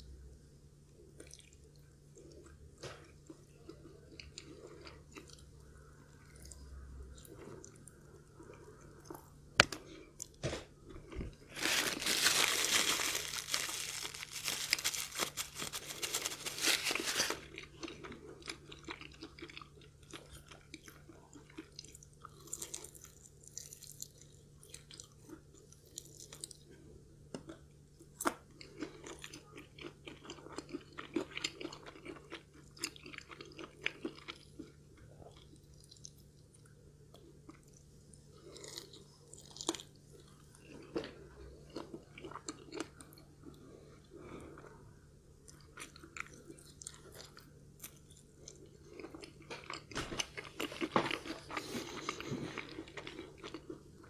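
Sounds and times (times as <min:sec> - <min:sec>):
crunching fried chicken: 0:09.6 - 0:26.7, 0:27.5 - 0:43.6, 0:45.4 - 0:54.0.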